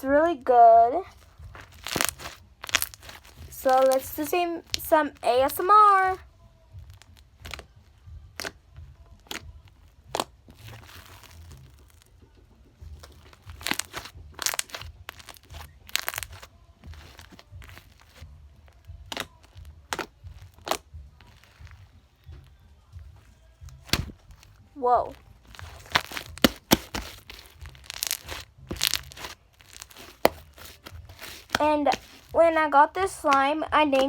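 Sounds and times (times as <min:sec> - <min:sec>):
slime squished by hand popping: 0:01.6 - 0:04.9, 0:13.0 - 0:18.2, 0:19.0 - 0:21.4, 0:23.7 - 0:24.2, 0:25.5 - 0:32.3.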